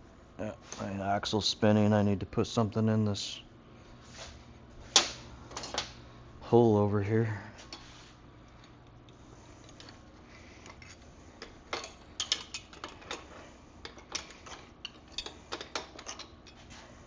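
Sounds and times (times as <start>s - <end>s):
hand tools clicking and tapping: 10.6s - 16.7s.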